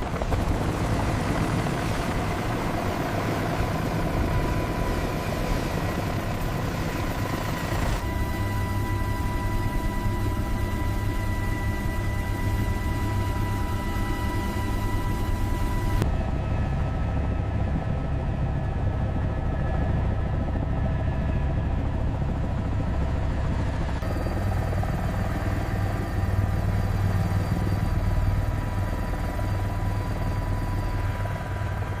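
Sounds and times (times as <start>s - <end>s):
helicopter running: 0.0s - 32.0s.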